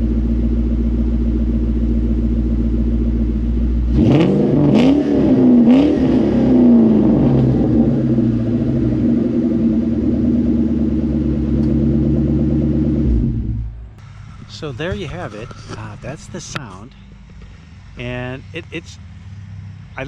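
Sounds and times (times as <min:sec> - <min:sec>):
car engine idling: 0:00.0 - 0:20.0
car engine revving: 0:00.0 - 0:20.0.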